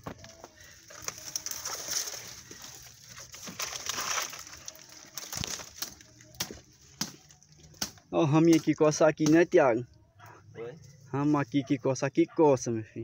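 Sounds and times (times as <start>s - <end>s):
dry brush rustling and crunching: 0.0s - 8.8s.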